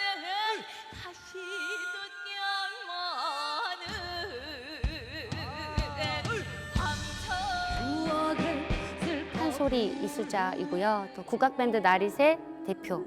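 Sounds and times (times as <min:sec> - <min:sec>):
person singing with vibrato: 0:00.0 - 0:13.0
backing band with bass and drums: 0:05.2 - 0:10.1.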